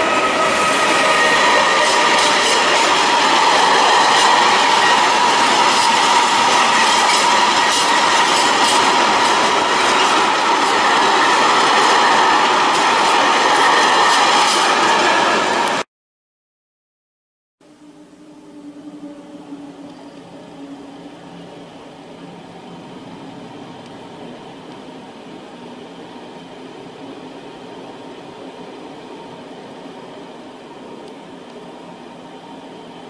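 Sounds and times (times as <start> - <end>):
high wheel squeal: 0.0 - 12.5
train wheels rumbling on rail: 0.0 - 15.8.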